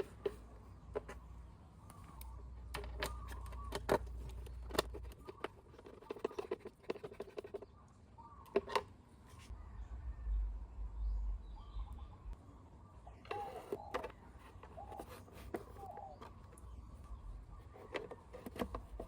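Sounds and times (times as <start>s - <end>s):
small tools clicking and knocking: 2.2s - 7.6s
low rumble: 9.6s - 12.4s.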